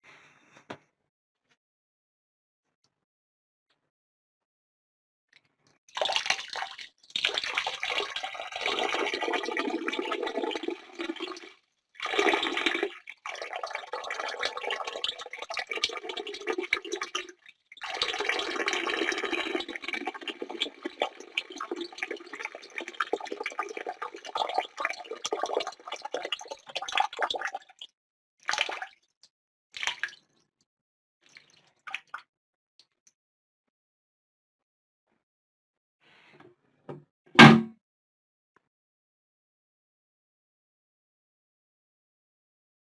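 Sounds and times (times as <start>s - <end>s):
urine splashing into toilet water: 5.9s - 29.0s.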